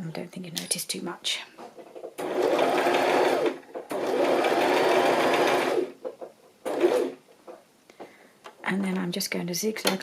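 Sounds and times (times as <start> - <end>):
sewing machine stitching: 2.2 - 6.0, 6.6 - 7.2.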